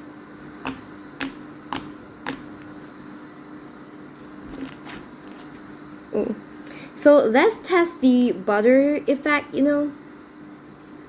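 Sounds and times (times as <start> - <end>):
slime clicking pops: 0.6 - 2.8.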